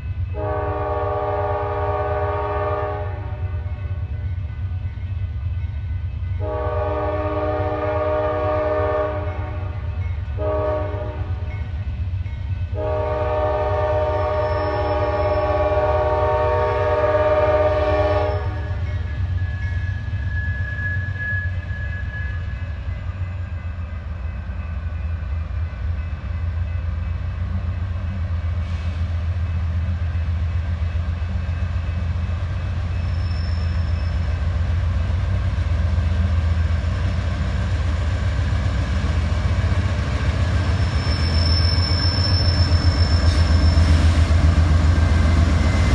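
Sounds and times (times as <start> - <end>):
locomotive engine rumbling: 0.0 - 45.9
locomotive horn blasts: 0.3 - 3.5, 6.4 - 9.7, 10.4 - 11.4, 12.7 - 18.8.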